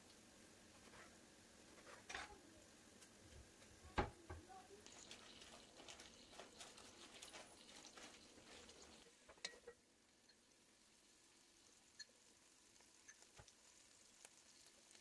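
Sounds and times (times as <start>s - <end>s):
vegetables frying in oil: 0.0s - 15.0s
wooden spoon stirring: 4.8s - 10.5s.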